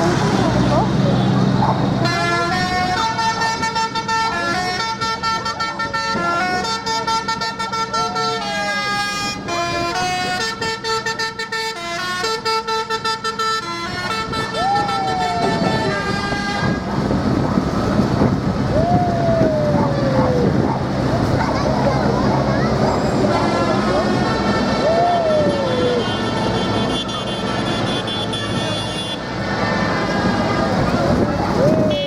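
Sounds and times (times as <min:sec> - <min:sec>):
low engine rumble: 0:00.0 - 0:32.0
falling whoops or whistles: 0:24.8 - 0:26.1.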